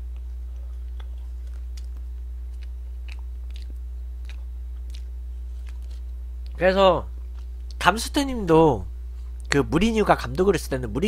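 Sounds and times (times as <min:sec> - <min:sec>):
person chewing: 0:00.0 - 0:06.6, 0:07.2 - 0:07.8
low electrical hum: 0:00.0 - 0:11.0
mouth clicks and smacks: 0:00.1 - 0:06.6.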